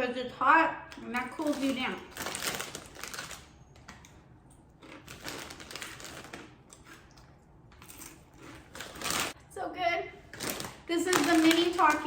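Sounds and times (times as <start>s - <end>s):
corn chips crunching: 4.8s - 9.4s.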